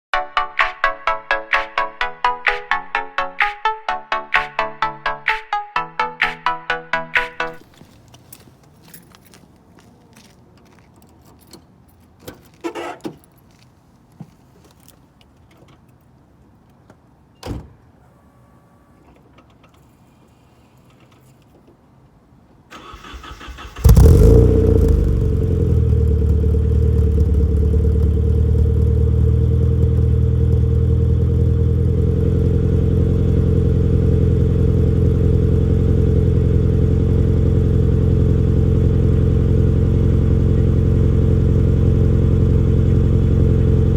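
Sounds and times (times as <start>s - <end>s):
engine starter cranking: 22.7s - 24.6s
car engine starting and idling: 22.7s - 43.9s.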